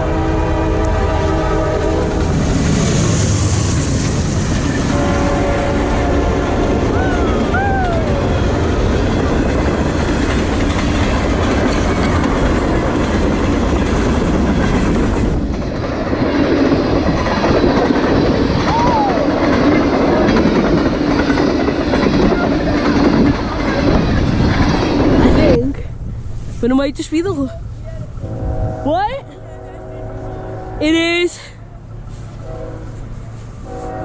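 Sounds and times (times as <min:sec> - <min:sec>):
freight train rumbling: 0:00.0 - 0:34.0
wheels clacking over rail joints: 0:08.2 - 0:25.8.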